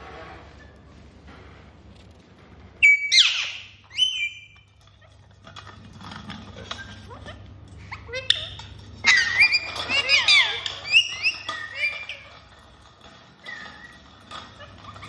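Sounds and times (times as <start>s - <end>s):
parrot screeching: 2.8s - 4.6s, 7.9s - 12.6s
parrot whistle: 2.8s - 4.6s, 8.2s - 12.3s.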